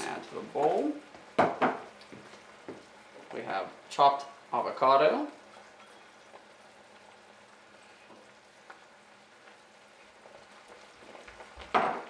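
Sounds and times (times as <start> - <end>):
pan sizzling: 0.0 - 12.0.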